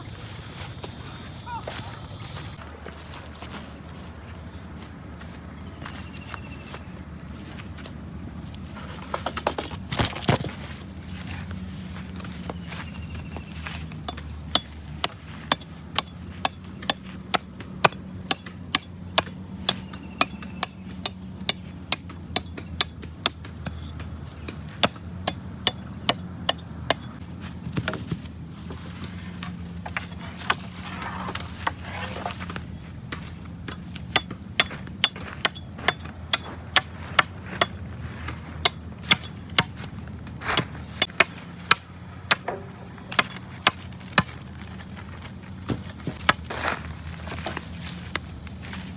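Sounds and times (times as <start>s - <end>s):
hand tool striking: 13.8s - 27.2s, 29.9s - 44.9s.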